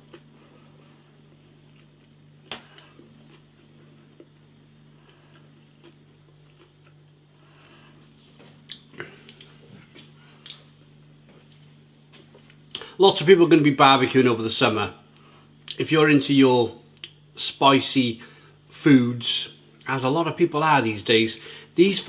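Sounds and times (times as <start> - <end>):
man chewing: 0.0 - 12.9
steady low hum: 0.0 - 22.0.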